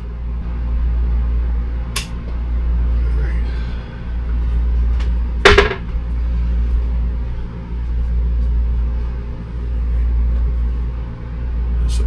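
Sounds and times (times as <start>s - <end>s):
sharp clack: 5.5s - 5.9s.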